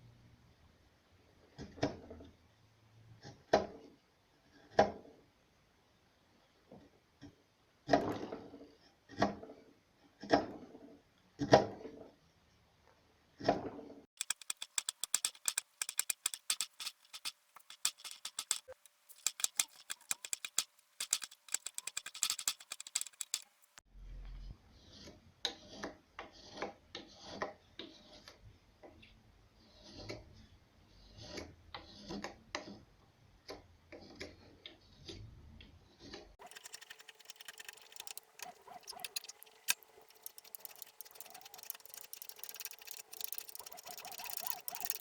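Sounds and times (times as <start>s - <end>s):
fast dry clicks: 14.2s - 23.8s, 36.4s - 45.0s.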